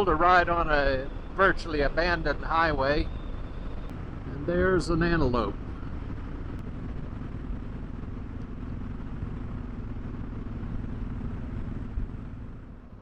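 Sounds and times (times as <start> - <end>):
motorcycle engine running steadily: 0.0 - 13.0.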